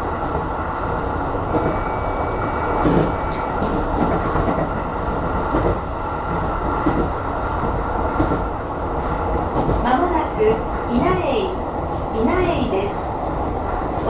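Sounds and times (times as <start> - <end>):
electric train rolling: 0.0 - 10.9
faint clicks from rails: 2.8 - 10.2.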